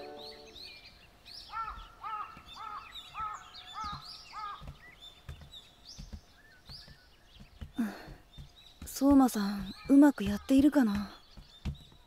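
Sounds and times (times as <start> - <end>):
faint high chirps: 0.0 - 0.9
birds calling: 0.0 - 12.0.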